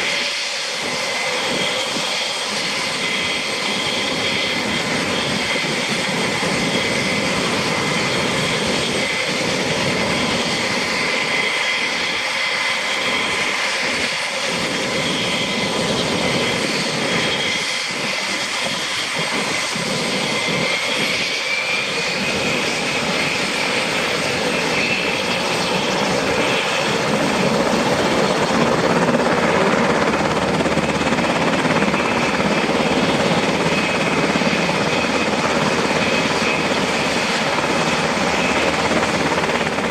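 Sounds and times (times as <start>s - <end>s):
helicopter turbine and rotor whine: 0.0s - 39.9s.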